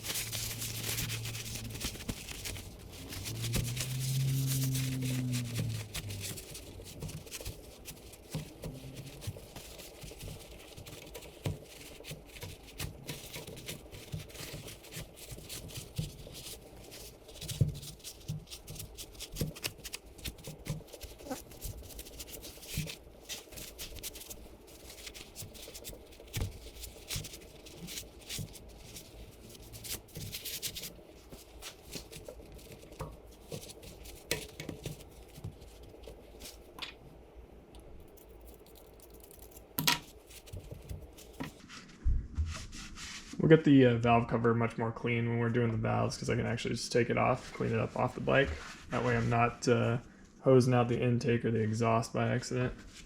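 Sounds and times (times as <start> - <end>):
scrubbing and rubbing engine parts: 0.0 - 36.8, 37.9 - 43.4.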